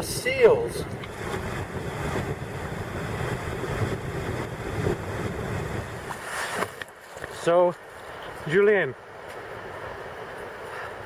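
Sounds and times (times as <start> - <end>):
wind buffeting microphone: 0.0 - 8.6
water washing around kayak: 0.9 - 8.6.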